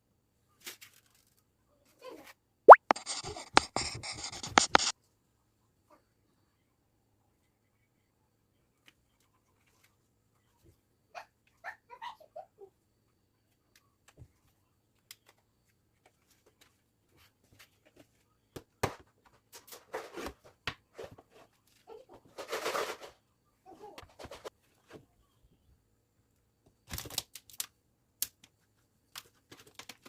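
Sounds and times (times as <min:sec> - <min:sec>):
rustling of things handled: 0:00.6 - 0:02.4.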